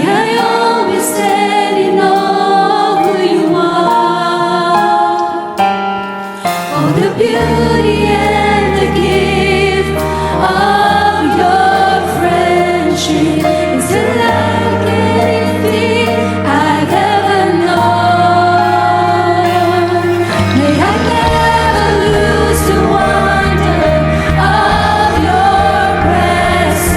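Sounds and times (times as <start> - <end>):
several voices singing: 0.0 - 5.7, 6.6 - 26.9
low keyboard notes: 0.3 - 26.9
bass notes: 7.0 - 26.9.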